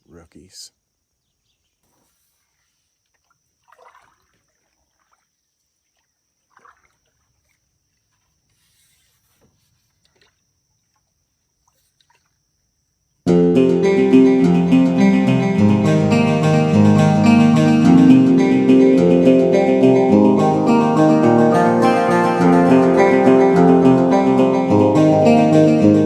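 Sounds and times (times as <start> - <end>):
faint water splashes: 2.4 - 8.6, 9.8 - 12.6
strummed acoustic guitar music: 13.3 - 26.0.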